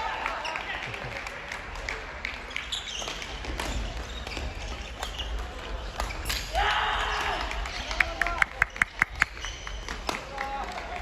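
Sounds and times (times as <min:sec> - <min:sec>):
murmur of hall: 0:00.0 - 0:11.0
rackets hitting shuttlecock: 0:03.0 - 0:06.6.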